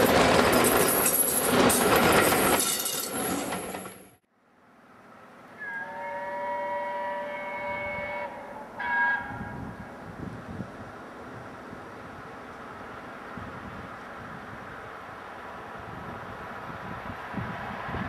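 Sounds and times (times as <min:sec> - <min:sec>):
train wheels rushing on rails: 0:00.0 - 0:04.2
distant train whistle: 0:05.5 - 0:10.0.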